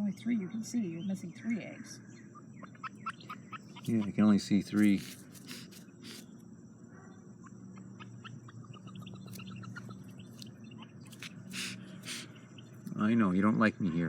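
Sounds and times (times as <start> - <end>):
ducklings peeping softly: 0.0 - 6.4, 7.0 - 14.0
duck hissing: 4.7 - 6.3, 11.1 - 12.5.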